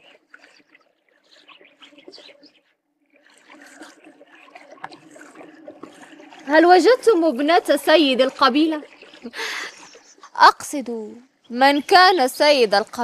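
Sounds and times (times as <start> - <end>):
bird calls: 0.0 - 2.8, 8.9 - 10.4
faint trickling water: 0.0 - 13.0.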